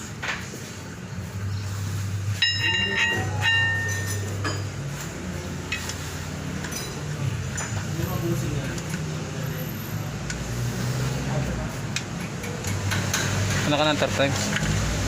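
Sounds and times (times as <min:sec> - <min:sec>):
metal tools clanking: 0:02.3 - 0:08.2.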